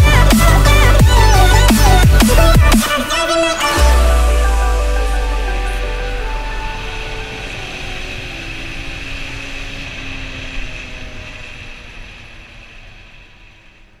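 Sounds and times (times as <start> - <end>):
motorcycle engine running: 3.8 - 14.0.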